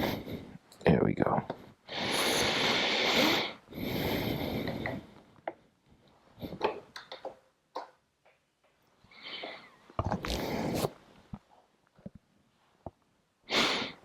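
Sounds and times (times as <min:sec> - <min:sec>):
small clicks and light knocks: 0:06.5 - 0:08.8.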